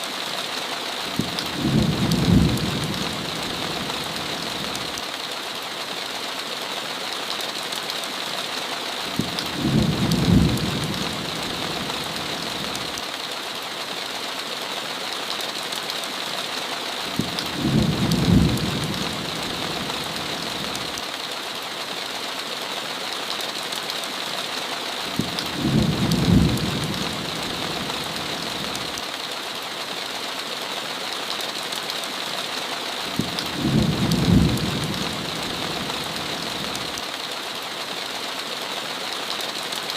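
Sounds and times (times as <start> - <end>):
heavy rain on a window: 0.0 - 39.9
low rumble of thunder: 1.2 - 4.7, 9.2 - 12.8, 17.2 - 20.7, 25.2 - 28.7, 33.2 - 36.7.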